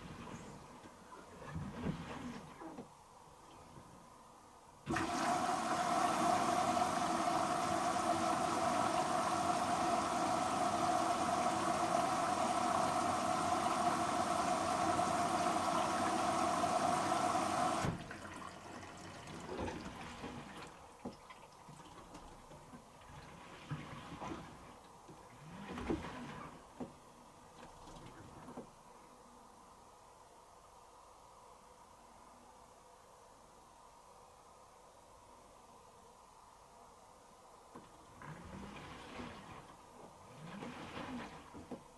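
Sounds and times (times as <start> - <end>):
water rushing into washing machine: 4.9 - 26.9, 37.8 - 41.9.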